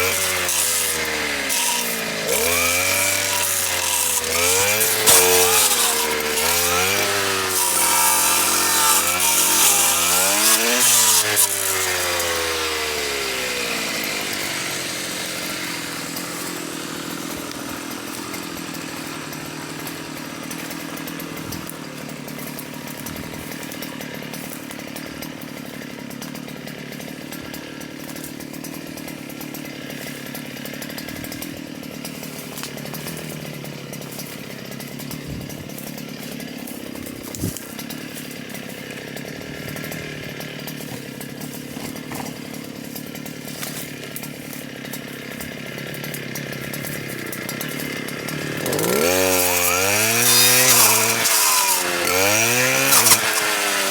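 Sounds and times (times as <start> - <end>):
power cutter blade spinning down: 0.0 - 18.5, 48.0 - 53.9.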